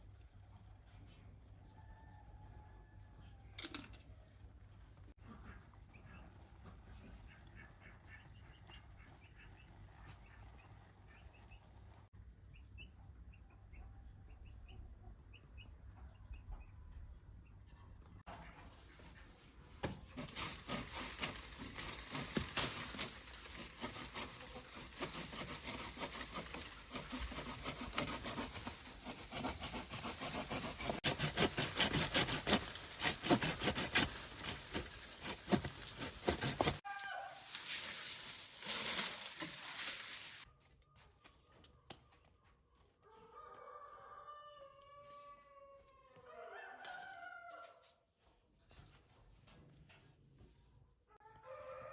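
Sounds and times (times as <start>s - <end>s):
dense crackling and scratching: 20.1s - 36.8s, 37.4s - 40.5s
chicken calling: 36.4s - 37.7s.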